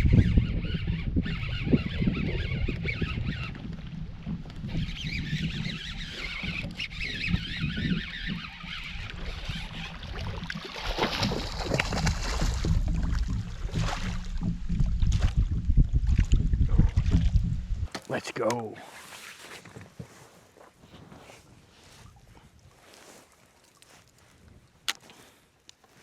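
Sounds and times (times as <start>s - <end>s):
wind buffeting microphone: 0.0s - 17.9s
splashy noises: 10.0s - 14.4s.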